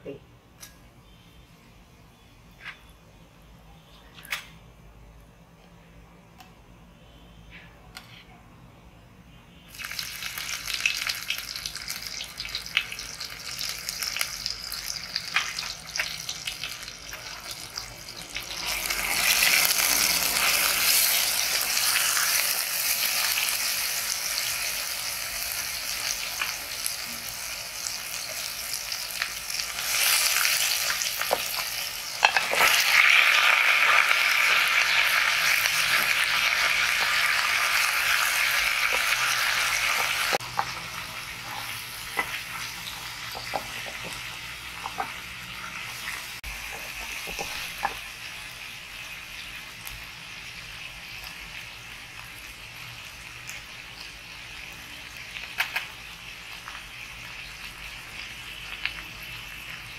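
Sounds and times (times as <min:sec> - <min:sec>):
paste sizzling in hot oil: 0:09.7 - 0:54.7.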